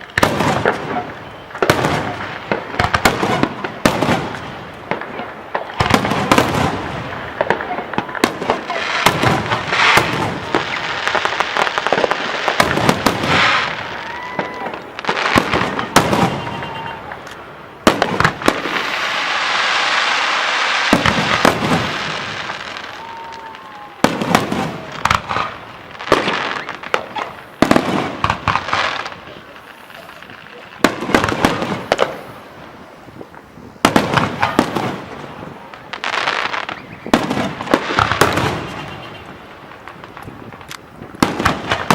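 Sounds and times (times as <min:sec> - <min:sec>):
firework shells bursting: 0:00.0 - 0:32.5
firework crackling: 0:00.0 - 0:41.9
firework whistles: 0:05.6 - 0:40.5.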